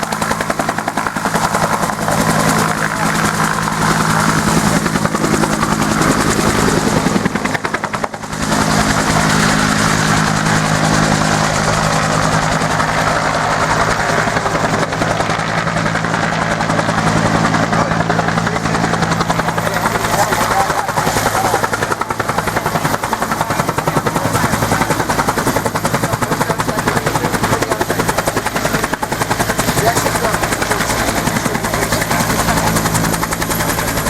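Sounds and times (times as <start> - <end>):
helicopter rotor chopping: 0.0 - 34.0.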